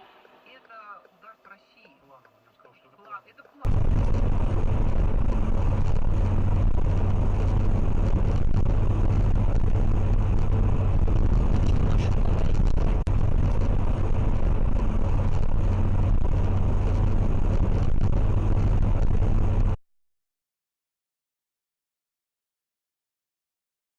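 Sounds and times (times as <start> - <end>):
vehicle engine and road noise: 2.2 - 19.8.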